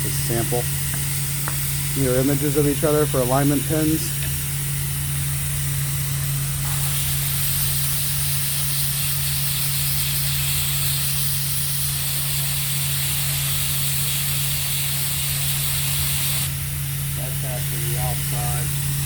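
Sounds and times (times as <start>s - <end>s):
machine low hum: 0.0s - 7.9s, 16.5s - 19.0s
vacuum air hiss: 0.0s - 19.0s.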